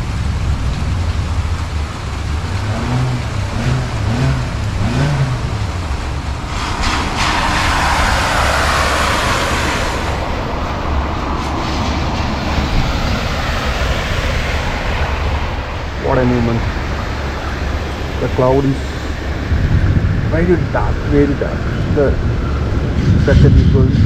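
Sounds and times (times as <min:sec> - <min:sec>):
heavy rain: 0:00.0 - 0:24.0
traffic on wet road: 0:00.0 - 0:24.0
wind rumble on microphone: 0:00.0 - 0:24.0.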